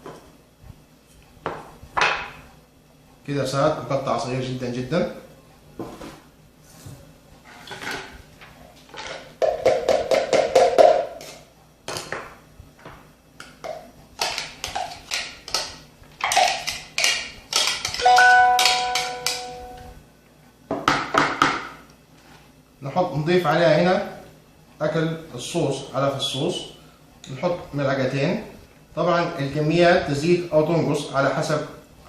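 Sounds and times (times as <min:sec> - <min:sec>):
short ringing tone: 0:18.0 - 0:20.0.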